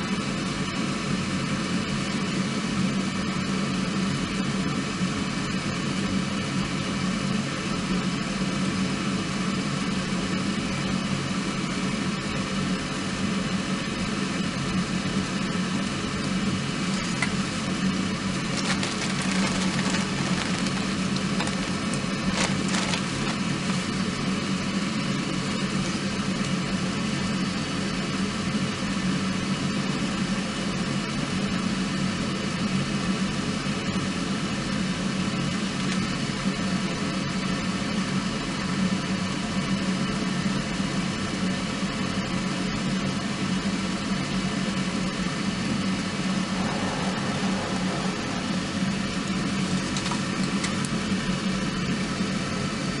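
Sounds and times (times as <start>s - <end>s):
steady hum: 8.2s - 28.1s, 43.5s - 53.0s
wood fire crackling: 18.2s - 24.3s.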